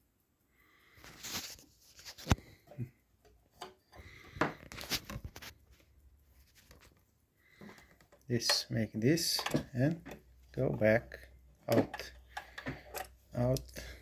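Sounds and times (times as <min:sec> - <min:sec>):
sewing machine clicks and knocks: 0:07.6 - 0:14.0.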